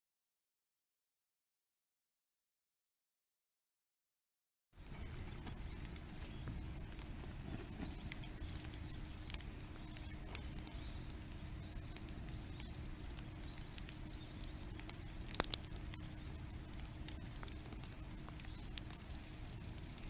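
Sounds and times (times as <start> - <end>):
low steady rumble: 4.8 - 20.0.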